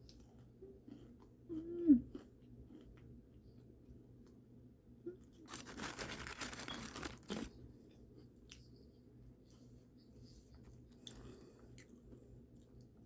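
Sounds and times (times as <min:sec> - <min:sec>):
paper wrapping crinkling and tearing: 0:05.4 - 0:07.5.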